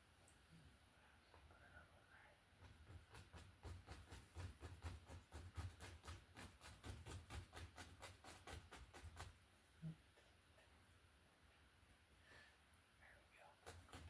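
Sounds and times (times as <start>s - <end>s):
paintbrush tapping on canvas: 2.6s - 9.4s.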